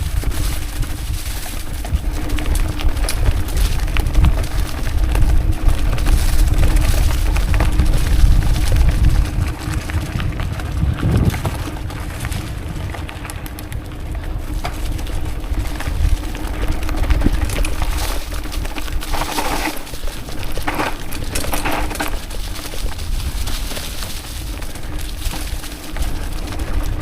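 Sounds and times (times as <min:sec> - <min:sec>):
bike clicking and rattling: 0:00.0 - 0:27.0
wind rumbling on microphone: 0:00.0 - 0:27.0.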